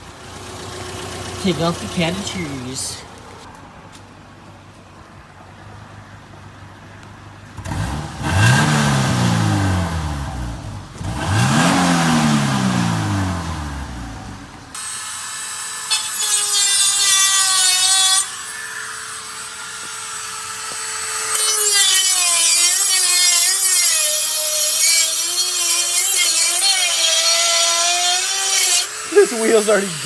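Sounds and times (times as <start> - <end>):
power saw cutting: 0.4 - 3.5, 14.7 - 30.0.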